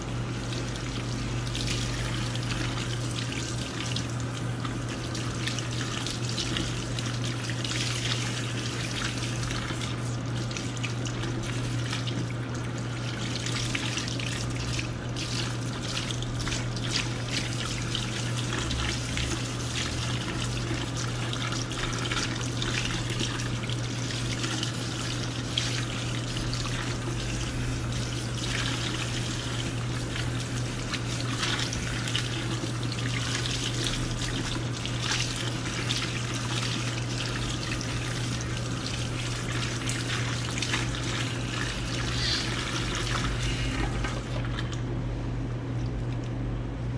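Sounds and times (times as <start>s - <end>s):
steady low hum: 0.0s - 46.9s
tap water splashing over hair: 13.3s - 44.8s.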